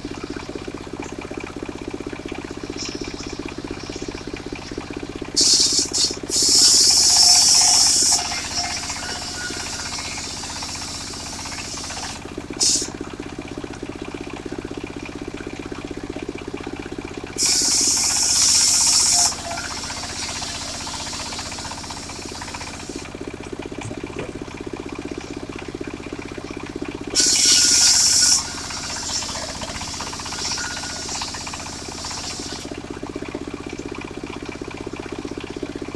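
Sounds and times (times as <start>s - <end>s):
circular saw cutting timber: 2.8s - 12.9s, 17.4s - 23.1s, 27.1s - 32.8s.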